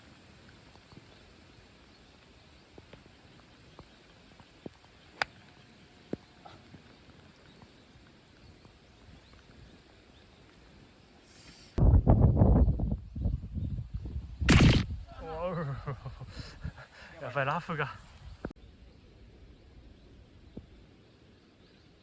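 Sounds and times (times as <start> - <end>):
sharp click: 14.5 - 14.9.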